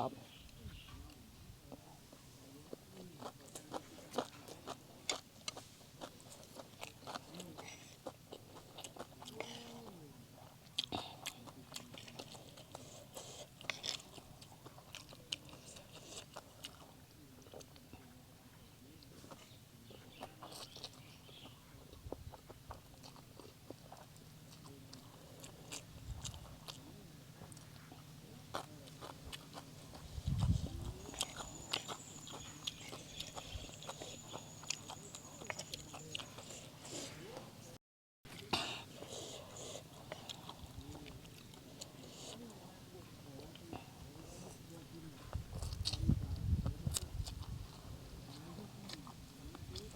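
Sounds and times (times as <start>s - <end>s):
person chewing food: 1.1s - 18.2s, 18.9s - 37.7s, 38.3s - 49.9s.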